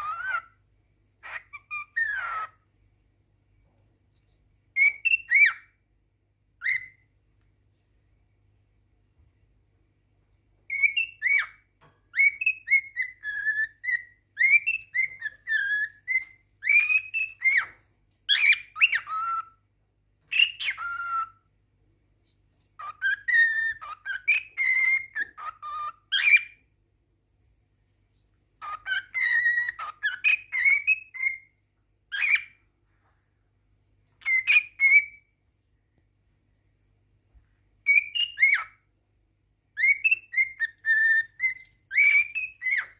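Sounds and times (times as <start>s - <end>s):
cockatiel warbling whistles: 39.8s - 42.9s.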